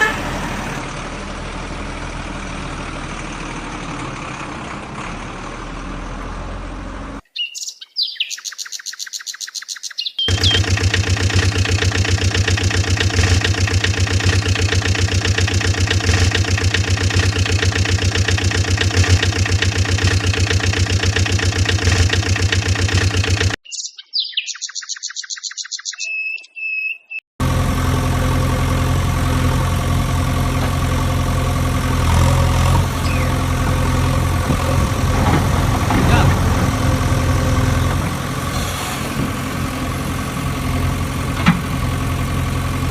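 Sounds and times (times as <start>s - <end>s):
deeper engine running: 0.0s - 7.2s, 10.3s - 23.6s, 27.4s - 42.9s
rapid high chirps: 7.4s - 10.6s
engine idling with chugging pulse: 10.3s - 23.6s, 27.4s - 42.9s.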